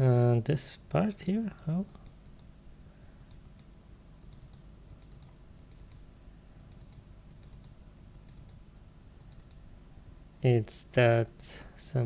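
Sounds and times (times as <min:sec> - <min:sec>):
faint low room hum: 0:00.0 - 0:12.0
keyboard and mouse clicking: 0:01.6 - 0:02.5, 0:03.2 - 0:06.0, 0:06.6 - 0:08.6, 0:09.2 - 0:09.6.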